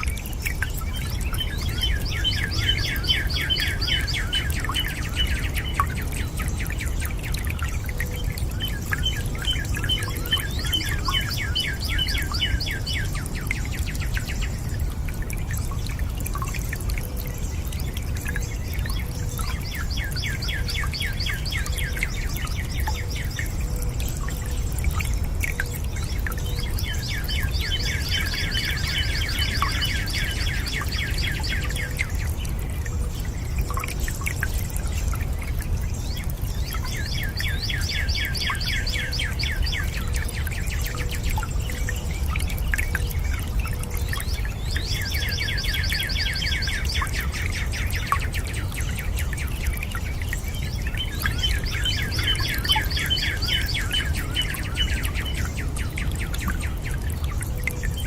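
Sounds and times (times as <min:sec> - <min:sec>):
running and dripping water: 0:00.0 - 0:58.0
bird singing fast trill: 0:44.1 - 0:56.9.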